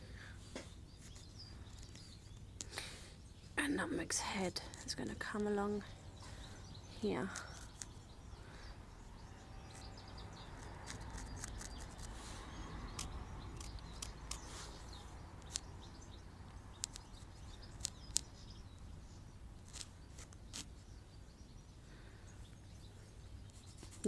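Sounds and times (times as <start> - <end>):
small ticks and taps: 15.4 - 15.7, 16.5 - 18.9.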